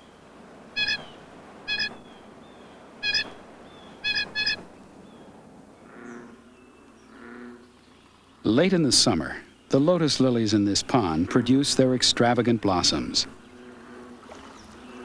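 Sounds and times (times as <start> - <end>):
waterfowl calling: 0.7 - 2.3, 3.0 - 4.8, 5.8 - 7.7.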